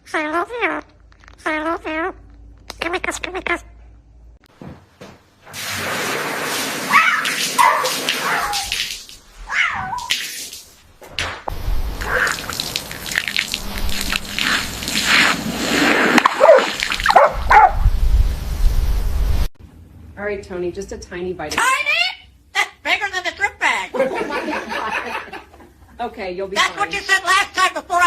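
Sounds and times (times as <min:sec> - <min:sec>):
pet animal calling: 0:12.0 - 0:12.6.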